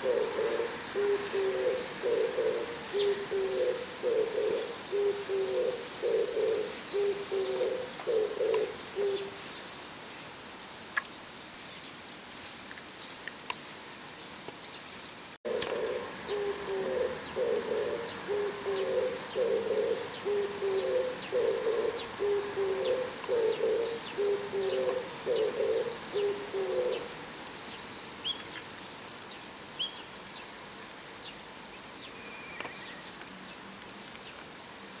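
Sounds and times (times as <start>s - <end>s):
dove cooing: 0.0s - 9.4s, 15.5s - 27.2s.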